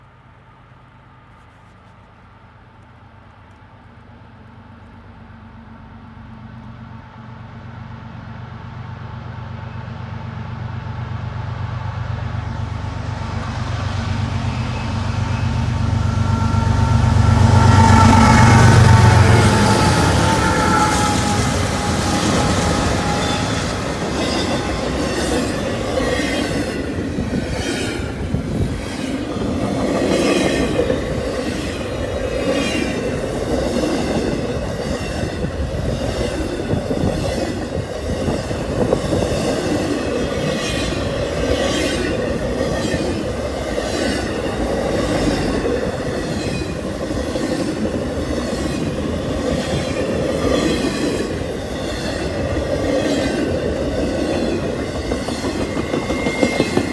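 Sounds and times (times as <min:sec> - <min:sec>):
freight train rumbling: 0:00.0 - 0:56.9
wheels clacking on rail joints: 0:12.5 - 0:56.9.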